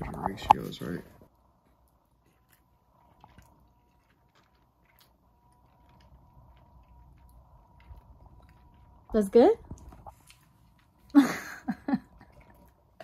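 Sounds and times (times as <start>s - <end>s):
faint chewing: 0.0s - 13.0s.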